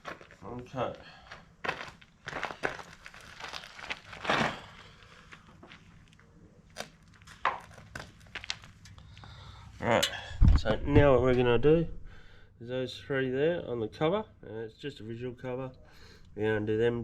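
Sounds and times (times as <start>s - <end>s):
rustling and crinkling: 0.0s - 9.3s.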